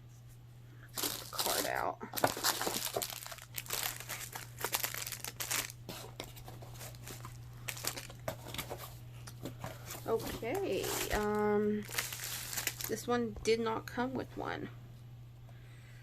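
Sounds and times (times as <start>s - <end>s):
steady low hum: 0.0s - 16.0s
paper and plastic crinkling: 1.0s - 13.1s.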